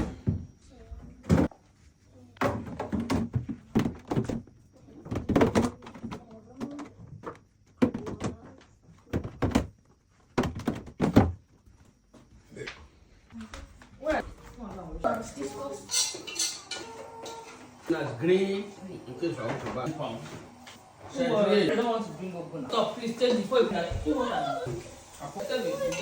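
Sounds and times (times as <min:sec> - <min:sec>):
containers and door thunking: 0:02.4 - 0:08.4, 0:09.0 - 0:11.5.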